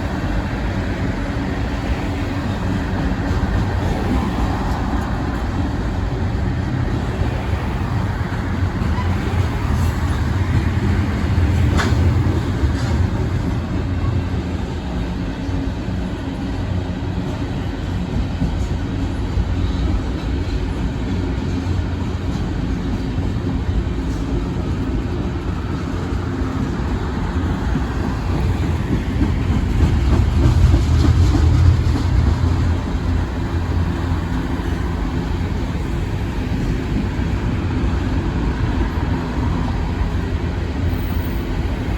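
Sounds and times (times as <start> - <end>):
freight train rumbling past: 0.0 - 41.9
wheels clicking on rails: 17.4 - 41.9.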